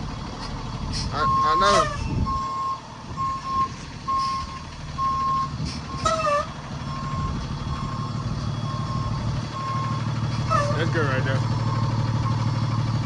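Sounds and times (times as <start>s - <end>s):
truck engine running: 0.0s - 13.0s
truck reversing alarm beeping: 1.1s - 13.0s.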